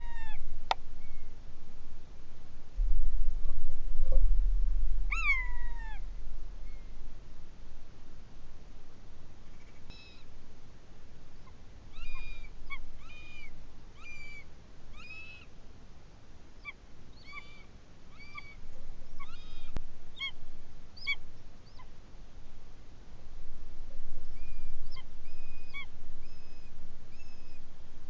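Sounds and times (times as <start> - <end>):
bird calls: 1.0 - 1.4, 5.1 - 6.0, 9.4 - 10.3, 11.4 - 15.5, 16.6 - 20.4, 21.0 - 21.9, 24.3 - 27.7.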